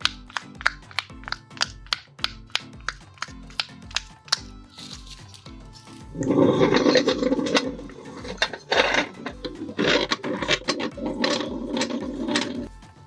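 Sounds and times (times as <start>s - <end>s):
grinder crunching plastic: 6.2s - 12.7s.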